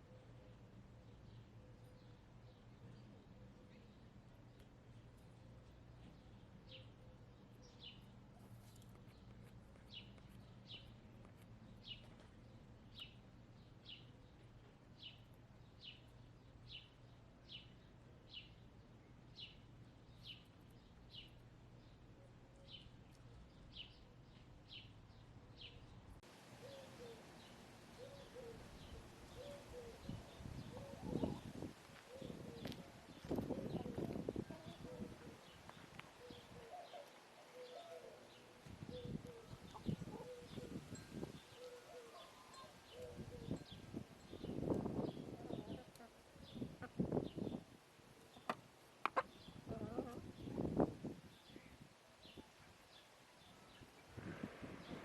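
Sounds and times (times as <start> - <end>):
songbird chirping: 0.0 - 54.2
hens calling softly: 48.2 - 50.3.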